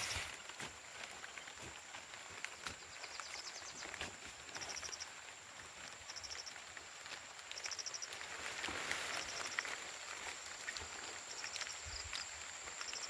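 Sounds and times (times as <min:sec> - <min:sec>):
insect pulsed chirp: 0:04.5 - 0:05.1, 0:06.0 - 0:06.6, 0:07.5 - 0:13.0.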